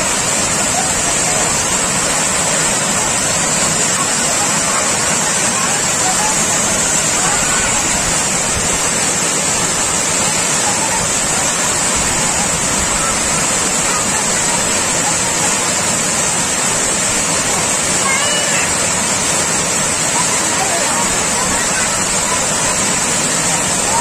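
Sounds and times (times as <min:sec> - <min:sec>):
water rushing over dam: 0:00.0 - 0:24.0.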